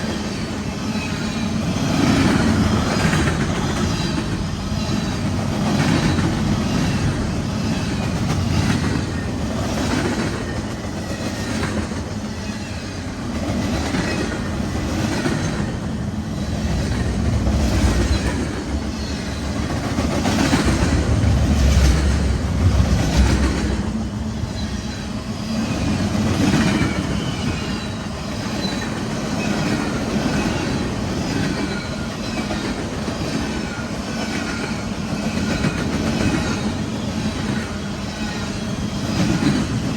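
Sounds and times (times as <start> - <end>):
train rumble: 0.0 - 39.9
train wheels clattering on rails: 0.0 - 39.9.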